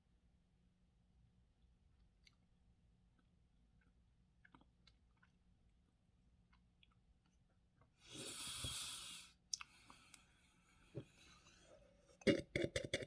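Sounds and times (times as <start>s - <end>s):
person chewing: 3.2s - 5.4s, 9.5s - 10.2s
wet mouth clicks: 9.5s - 9.8s.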